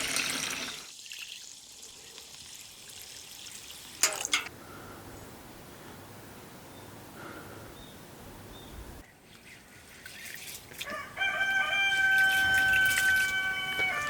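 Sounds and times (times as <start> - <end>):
rooster crowing: 10.8 - 14.0.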